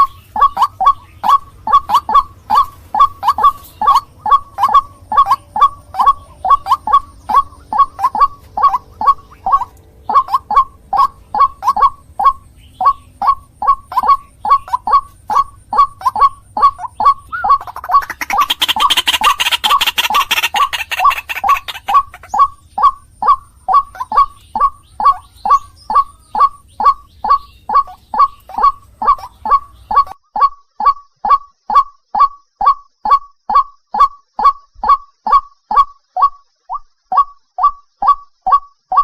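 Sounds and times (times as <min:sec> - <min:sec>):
low background hum: 0:00.0 - 0:30.2
bird repeated call: 0:00.0 - 0:39.0.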